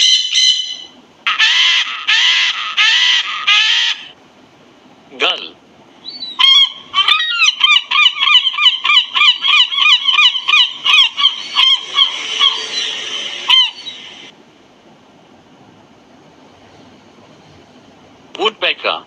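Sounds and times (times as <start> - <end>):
gull yelping calls: 0.0 - 4.2, 6.0 - 14.3.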